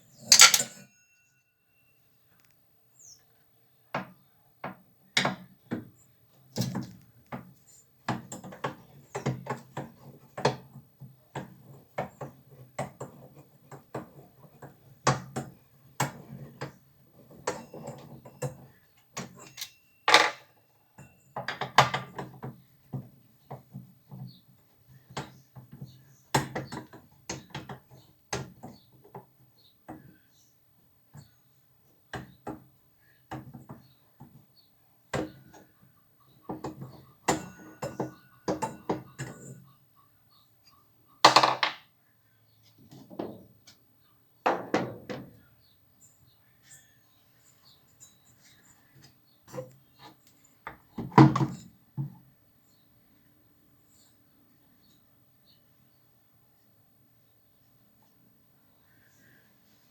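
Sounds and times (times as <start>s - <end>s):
tools and parts clattering: 0.0s - 1.2s, 12.9s - 23.8s, 36.5s - 39.7s, 41.2s - 41.8s.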